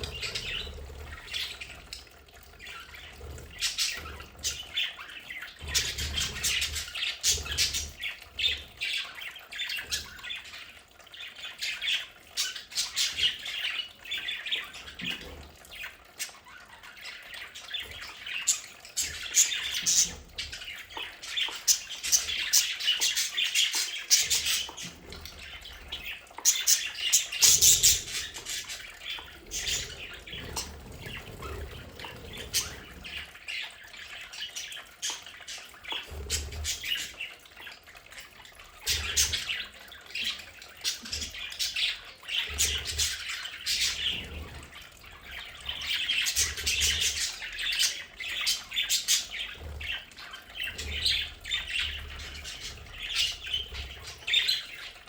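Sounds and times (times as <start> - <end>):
budgerigars chattering: 17.7 - 33.7.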